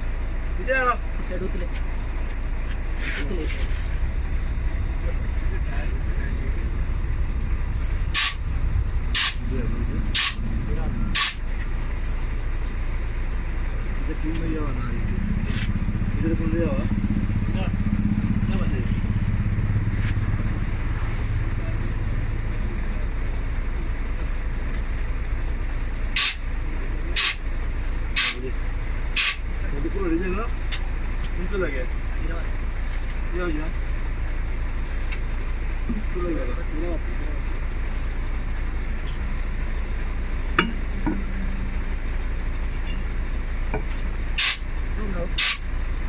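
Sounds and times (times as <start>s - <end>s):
heavy vehicle idling: 0.0s - 46.0s
steady low hum: 0.0s - 46.0s
compressed air hisses: 44.4s - 44.6s.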